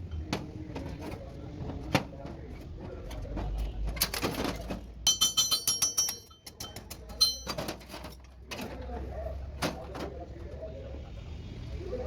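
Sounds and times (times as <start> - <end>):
sharp ringing taps: 5.1 - 7.6.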